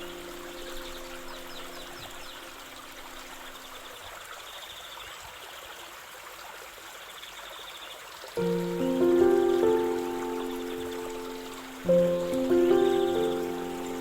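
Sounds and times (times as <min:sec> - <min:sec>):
soft music: 0:00.0 - 0:04.0, 0:08.4 - 0:14.0
stream water babbling: 0:00.0 - 0:14.0.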